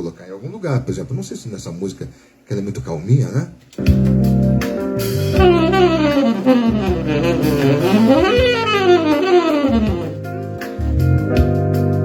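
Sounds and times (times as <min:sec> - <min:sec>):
backing track held chords: 0:04.6 - 0:10.5
saxophone fast runs: 0:05.4 - 0:10.2.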